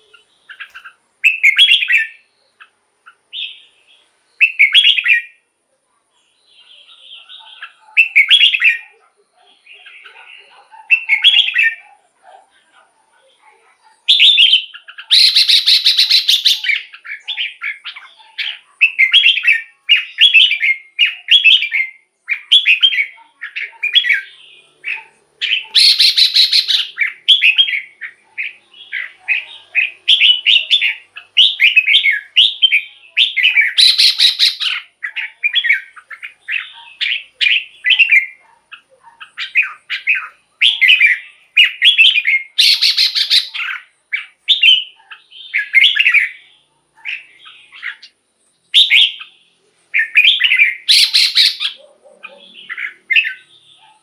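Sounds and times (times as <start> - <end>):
bird singing warbled phrases: 0.0 - 54.0
buzzy bird call: 14.1 - 46.4, 50.0 - 54.0.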